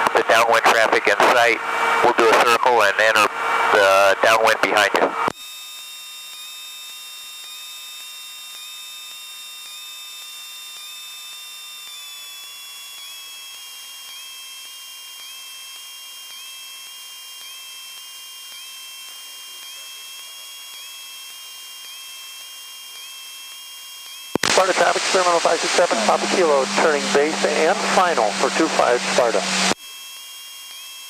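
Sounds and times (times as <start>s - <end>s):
cockpit intercom whine and hiss: 0.1s - 5.2s, 24.4s - 29.8s.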